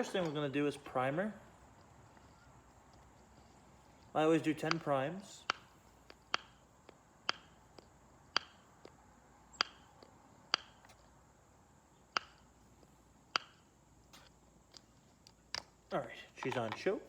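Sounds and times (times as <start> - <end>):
primer bulb clicking: 7.2 - 8.6, 9.6 - 9.8.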